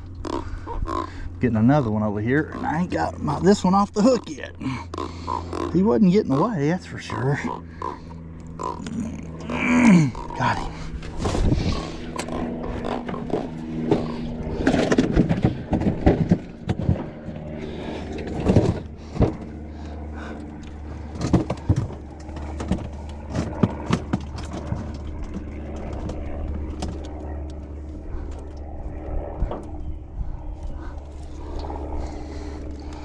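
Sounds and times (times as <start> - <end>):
engine hum: 0.0 - 33.0.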